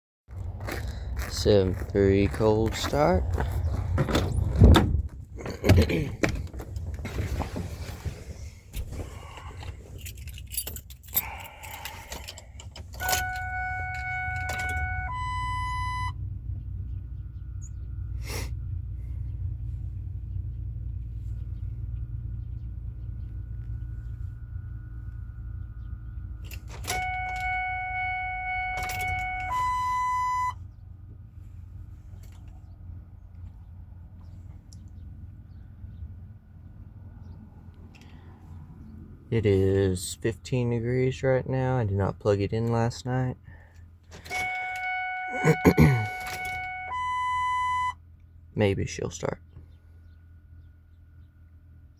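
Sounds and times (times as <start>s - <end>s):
low hum: 3.2s - 38.6s
keys jangling: 9.6s - 14.8s
two-note electronic warning chime: 13.0s - 16.2s, 26.8s - 30.6s, 44.3s - 48.0s.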